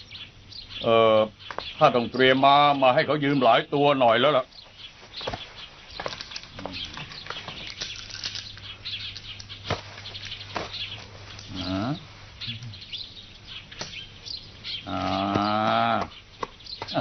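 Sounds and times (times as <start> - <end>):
birds chirping: 0.0 - 17.0
pitched bird call: 5.2 - 17.0.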